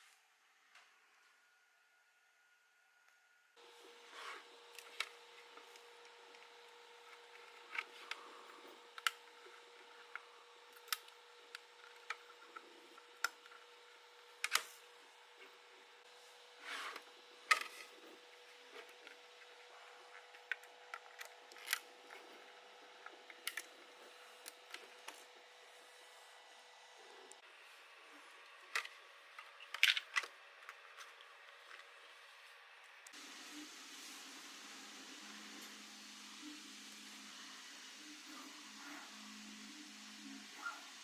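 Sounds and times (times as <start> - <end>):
faint steady hum: 0.0 - 41.0
plastic parts clicking and rubbing: 28.7 - 32.0.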